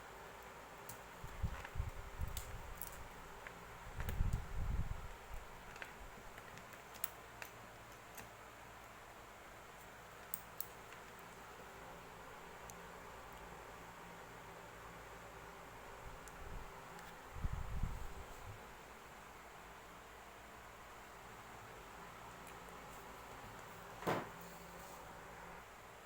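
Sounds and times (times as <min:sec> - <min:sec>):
light clicks of small hard objects: 0:00.4 - 0:08.4.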